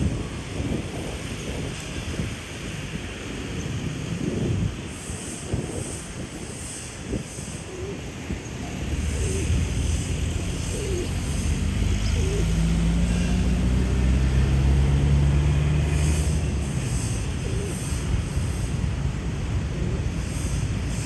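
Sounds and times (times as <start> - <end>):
passing vehicle engine hum: 7.8 - 21.0.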